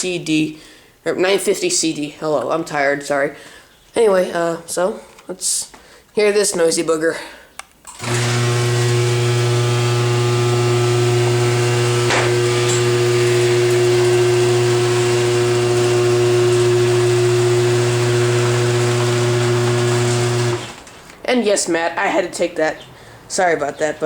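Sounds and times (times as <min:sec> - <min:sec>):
garage door opener humming: 0:07.9 - 0:21.0.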